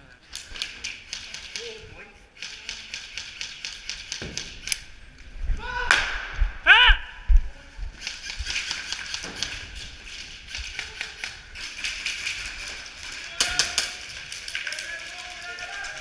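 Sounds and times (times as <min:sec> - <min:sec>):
sharp cracks: 0:00.3 - 0:01.8, 0:02.4 - 0:04.9, 0:05.8 - 0:06.6, 0:08.0 - 0:16.0
airsoft guns firing in bursts: 0:08.0 - 0:16.0.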